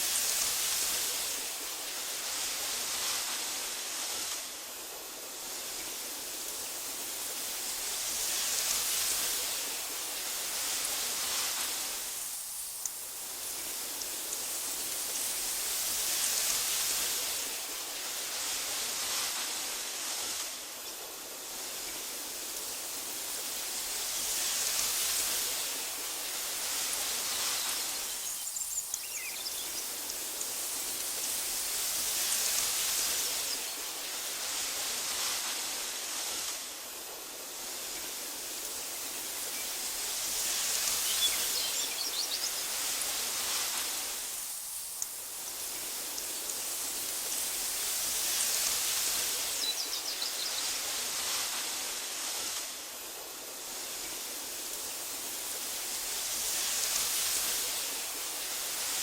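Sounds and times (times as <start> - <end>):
wind blowing through grass: 0.0 - 59.0
faint high chirps: 27.6 - 30.2.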